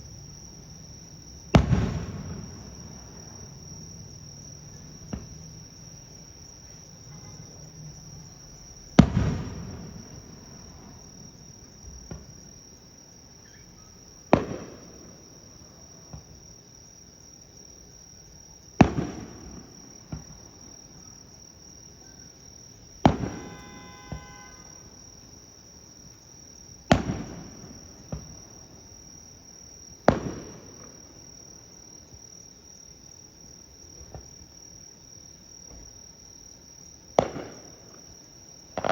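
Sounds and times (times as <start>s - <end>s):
firework bangs: 0.0s - 6.0s, 6.6s - 12.5s, 13.4s - 16.4s, 18.8s - 20.7s, 22.9s - 24.9s, 26.9s - 28.7s, 30.0s - 31.3s, 37.2s - 38.9s
insects chirping: 0.0s - 38.9s.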